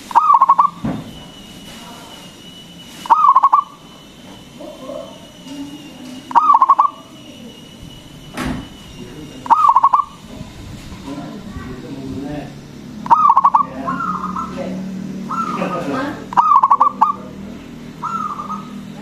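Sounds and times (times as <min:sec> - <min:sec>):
dove cooing: 0:00.0 - 0:00.9, 0:03.0 - 0:08.3, 0:09.2 - 0:11.1, 0:12.6 - 0:19.0.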